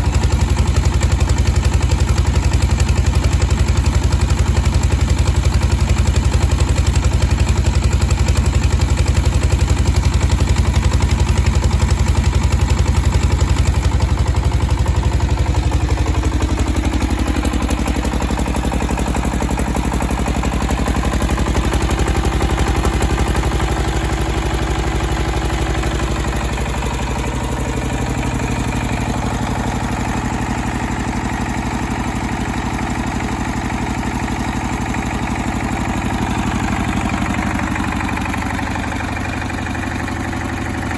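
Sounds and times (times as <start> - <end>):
generator engine running: 0.0 - 40.9.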